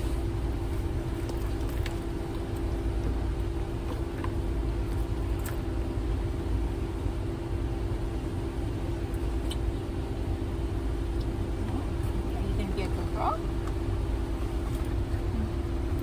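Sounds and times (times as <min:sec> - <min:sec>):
air conditioning blowing: 0:00.0 - 0:16.0
car engine low rumble: 0:00.0 - 0:16.0.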